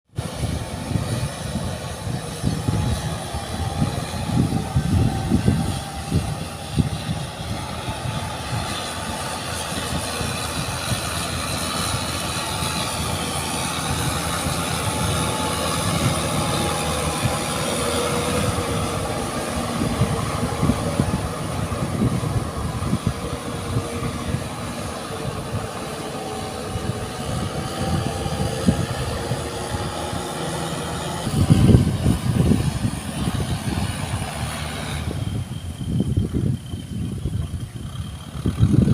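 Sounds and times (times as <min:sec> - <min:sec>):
tractor engine running: 0:00.1 - 0:38.9.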